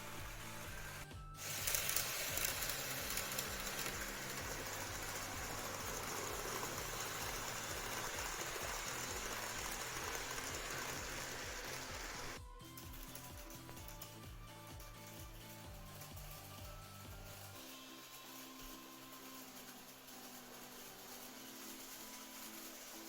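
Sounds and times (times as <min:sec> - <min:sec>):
model train whirring on track: 0:00.0 - 0:12.4, 0:17.6 - 0:23.0.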